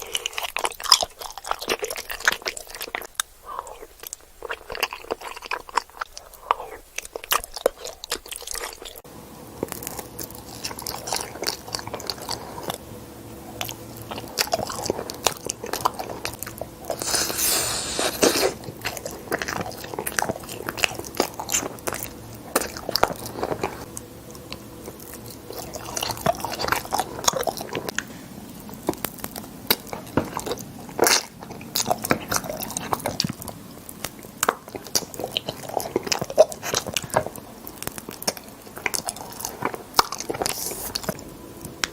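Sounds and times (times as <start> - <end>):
crunchy chewing: 0.0 - 9.0, 9.6 - 12.8, 13.4 - 41.9
wet mouth clicks: 16.9 - 18.6.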